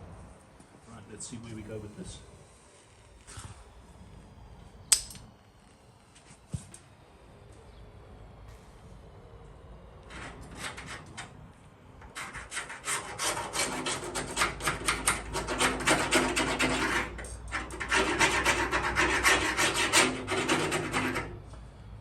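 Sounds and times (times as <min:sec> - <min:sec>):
metal blade scraping tar: 0:12.0 - 0:21.4.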